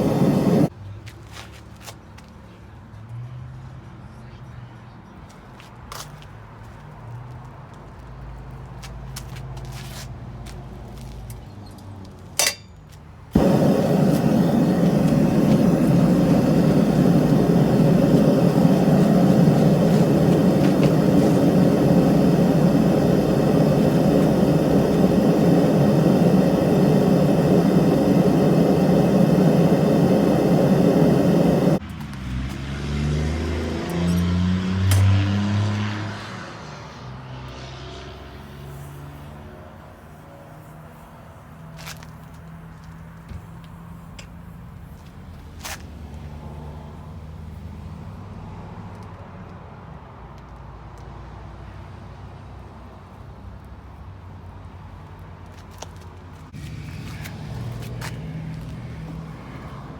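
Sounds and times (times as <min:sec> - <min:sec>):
loud steady machine noise: 0:00.0 - 0:00.7, 0:13.4 - 0:31.8
faint low rumbling: 0:13.4 - 0:31.8.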